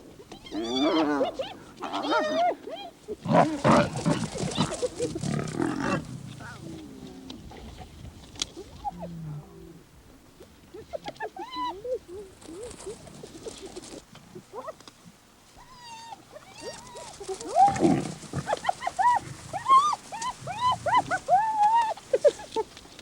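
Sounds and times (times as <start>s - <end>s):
hyenas yelping: 0.4s - 6.8s, 15.6s - 22.7s
lion growling: 3.2s - 7.6s, 16.6s - 21.4s.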